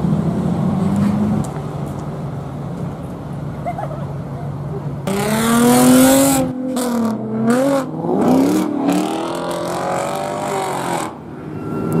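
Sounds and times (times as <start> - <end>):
car engine revving and accelerating: 5.0 - 11.2.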